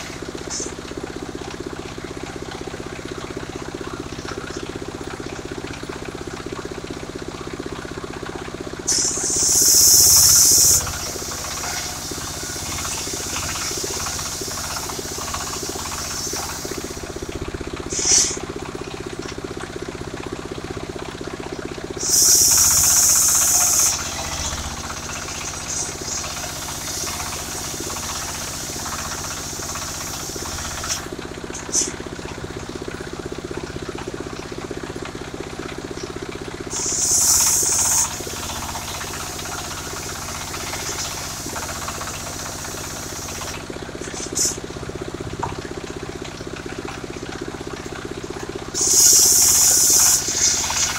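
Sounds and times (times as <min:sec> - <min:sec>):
sawmill engine running: 0:00.0 - 0:50.9
loud high hissing bursts: 0:08.9 - 0:17.3, 0:17.9 - 0:18.4, 0:22.0 - 0:31.1, 0:36.7 - 0:43.6, 0:48.8 - 0:50.9.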